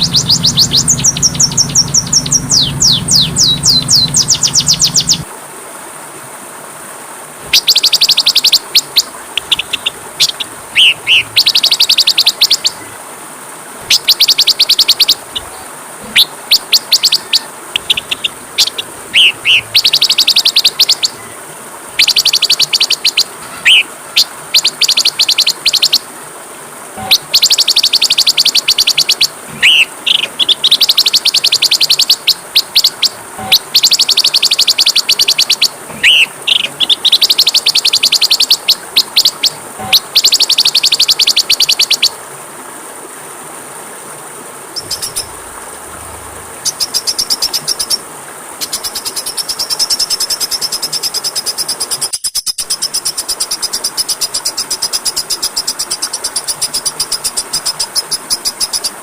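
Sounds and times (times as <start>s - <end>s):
short rising chirps: 0.0s - 5.3s
songbird fast high trills: 0.0s - 5.3s, 7.5s - 13.0s, 13.9s - 21.4s, 22.0s - 26.1s, 27.0s - 42.2s, 44.8s - 48.0s
steady high hiss: 0.0s - 59.0s.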